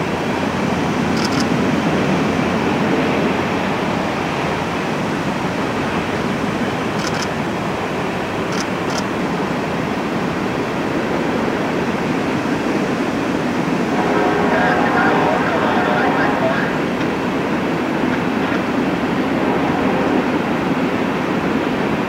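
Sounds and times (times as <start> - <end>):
freight cars rumbling over bridge: 0.0 - 22.0
faint high clicks: 7.0 - 7.3.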